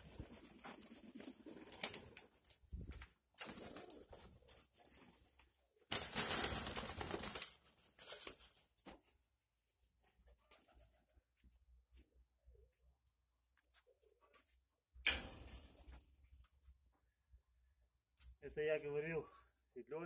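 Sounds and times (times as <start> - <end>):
pigeon wings flapping: 0.0 - 8.6.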